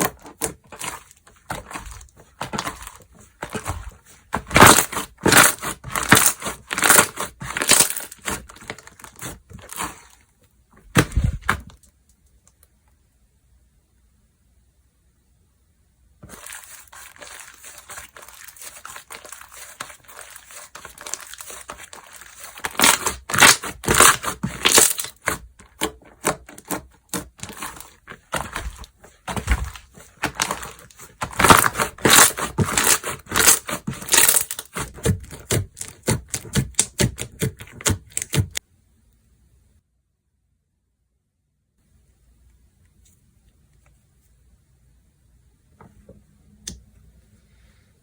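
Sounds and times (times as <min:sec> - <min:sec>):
slime crackling and popping: 0:16.3 - 0:38.6.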